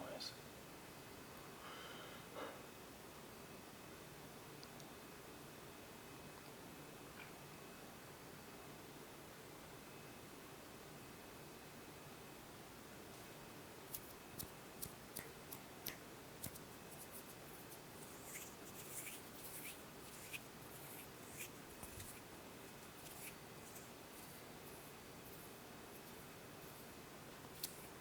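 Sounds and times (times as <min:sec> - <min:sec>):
microphone hiss: 0:00.0 - 0:28.0
scratchy rustling: 0:16.4 - 0:28.0.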